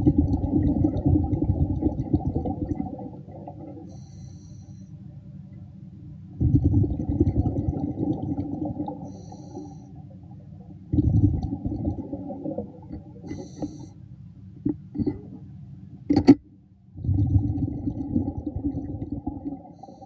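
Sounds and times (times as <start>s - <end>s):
exhaled bubbles rumbling: 0.0s - 4.0s, 6.3s - 13.8s, 16.9s - 20.0s
regulator inhaling hiss: 3.9s - 5.0s, 9.0s - 10.0s, 13.2s - 14.0s, 19.8s - 20.0s.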